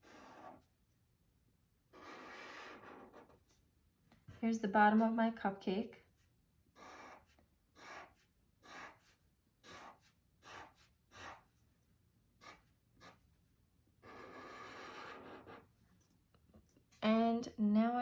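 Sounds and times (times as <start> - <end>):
pencil scratching on paper: 0.0 - 0.8, 1.9 - 3.7, 6.0 - 11.7, 12.3 - 13.4, 14.0 - 16.1.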